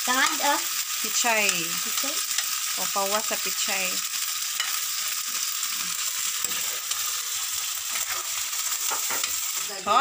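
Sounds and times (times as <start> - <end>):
vegetables sizzling in oil: 0.0 - 10.0
metal ladle scraping wok: 6.0 - 9.7.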